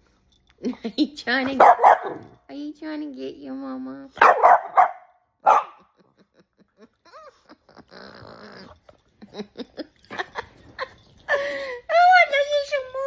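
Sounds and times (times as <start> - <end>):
soft breathy laughter: 5.8 - 11.9.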